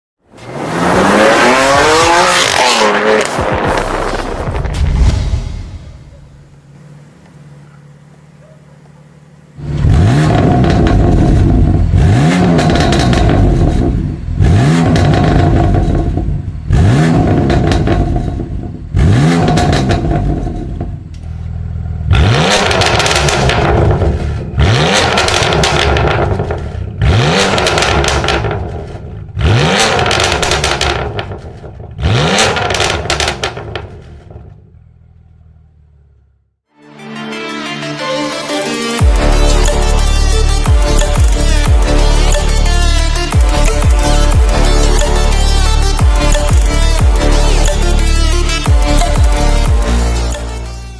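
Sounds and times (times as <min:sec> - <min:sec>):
car engine revving hard: 0:00.4 - 0:04.7, 0:09.6 - 0:20.9, 0:22.0 - 0:28.8, 0:29.4 - 0:31.3, 0:32.0 - 0:33.8
exhaust crackling and popping: 0:01.5 - 0:21.4, 0:22.4 - 0:35.6, 0:39.0 - 0:50.6.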